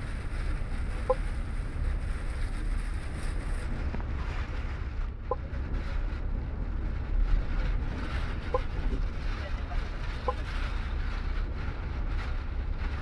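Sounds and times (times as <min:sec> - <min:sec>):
bus engine rumble: 0:00.0 - 0:13.0
wind buffeting bus body: 0:00.0 - 0:13.0.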